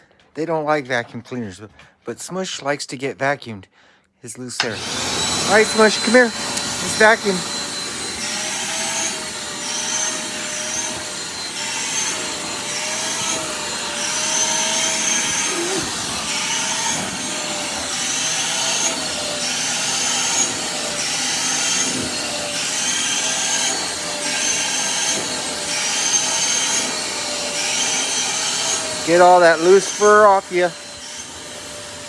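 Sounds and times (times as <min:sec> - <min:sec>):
vacuum cleaner running: 0:04.6 - 0:32.0.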